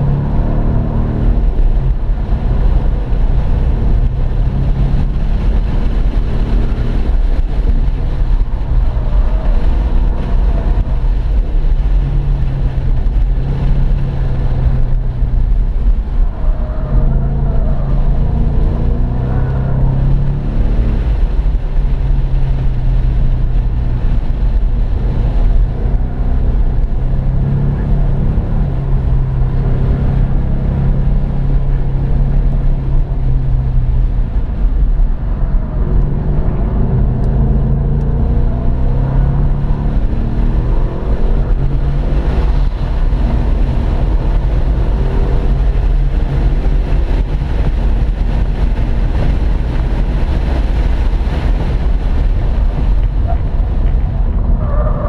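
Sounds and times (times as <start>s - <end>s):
car engine revving: 0.0s - 55.0s
road and tyre noise: 0.0s - 55.0s.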